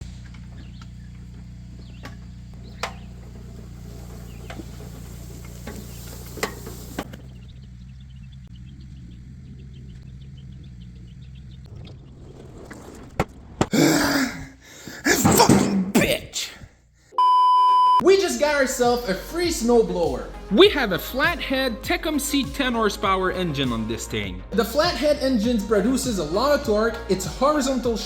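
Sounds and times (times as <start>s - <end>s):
small engine humming: 0.0s - 12.2s.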